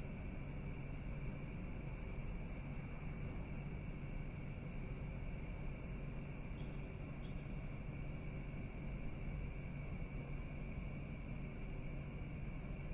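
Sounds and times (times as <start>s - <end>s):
constant low rumble: 0.0s - 12.9s
insects chorus: 0.0s - 12.9s.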